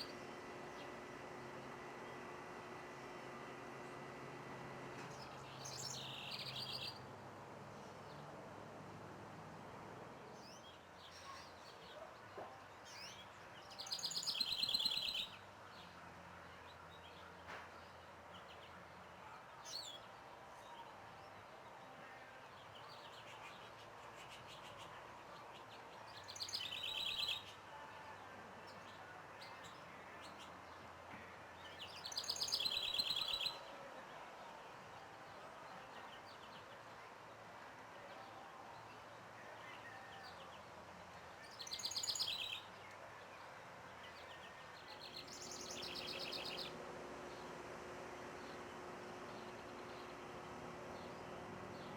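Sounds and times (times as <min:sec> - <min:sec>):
songbird trilled song: 0:05.1 - 0:07.0, 0:12.9 - 0:15.4, 0:26.1 - 0:27.6, 0:31.6 - 0:33.7, 0:41.4 - 0:42.9, 0:44.0 - 0:46.7.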